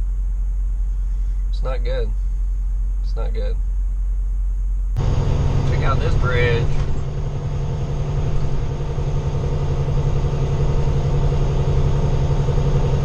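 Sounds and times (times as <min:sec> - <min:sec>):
diesel truck engine running: 0:00.0 - 0:04.0, 0:04.8 - 0:13.0
road noise: 0:05.0 - 0:13.0.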